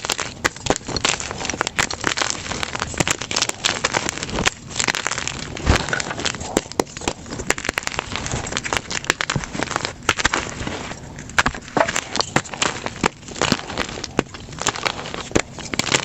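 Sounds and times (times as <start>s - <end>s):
chalk crunching by hand: 0.0s - 16.0s.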